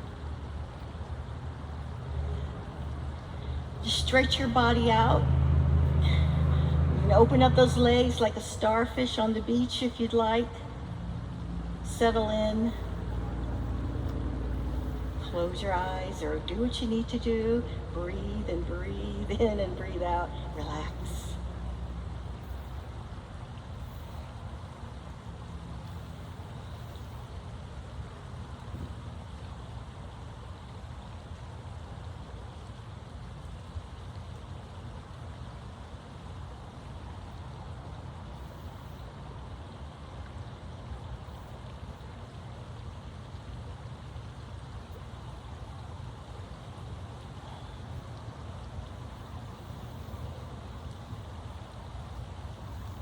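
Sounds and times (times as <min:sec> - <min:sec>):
low rumble: 0:00.0 - 0:26.4
faint hiss: 0:00.0 - 0:53.0
low background rumble: 0:00.0 - 0:53.0.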